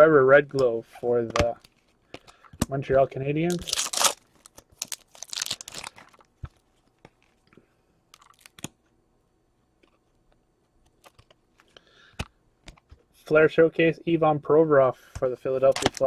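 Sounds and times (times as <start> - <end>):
wrappers crinkling and rustling: 3.5 - 7.5, 8.1 - 8.6.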